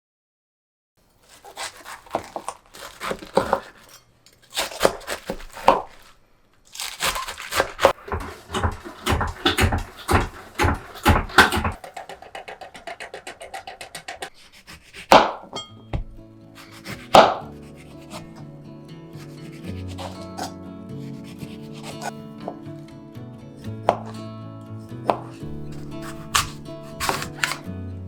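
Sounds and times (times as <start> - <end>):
paper crinkling and tearing: 1.0 - 11.0, 16.6 - 18.4, 19.2 - 20.5, 21.2 - 22.2, 25.4 - 27.7.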